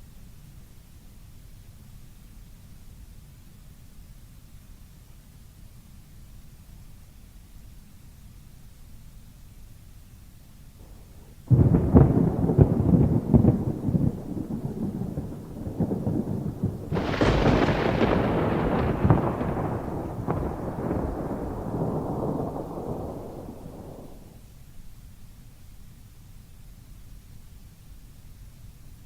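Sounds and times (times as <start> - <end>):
thunder clap and rumble: 10.8 - 24.4.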